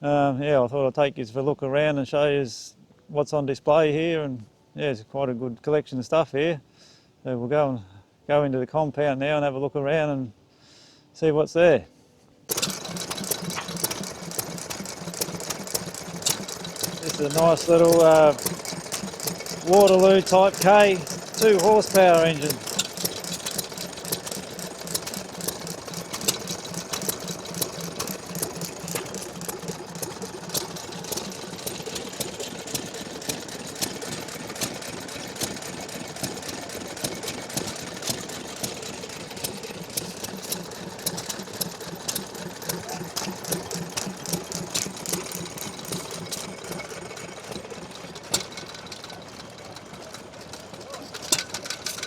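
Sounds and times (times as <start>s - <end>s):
stationary engine clattering: 12.5s - 52.0s.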